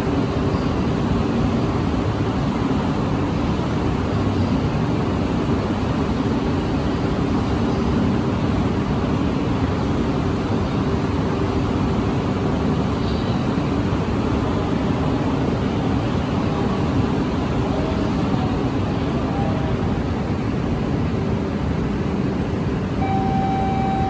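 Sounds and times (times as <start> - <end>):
train running steadily: 0.0 - 24.0.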